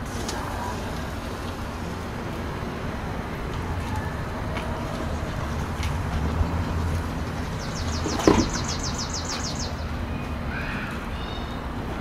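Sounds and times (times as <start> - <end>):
low outdoor rumble: 0.0 - 12.0
bird trilling: 7.4 - 11.6
single knock: 8.0 - 8.6.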